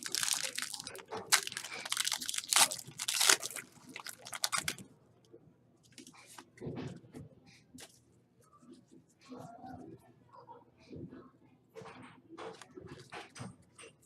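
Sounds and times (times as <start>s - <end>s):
foil wrappers tearing and crinkling: 0.0s - 4.8s.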